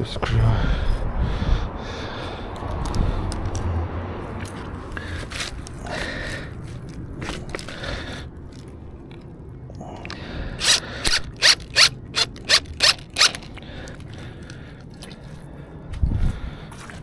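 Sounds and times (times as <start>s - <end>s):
sharp rasping strokes: 10.6s - 13.4s.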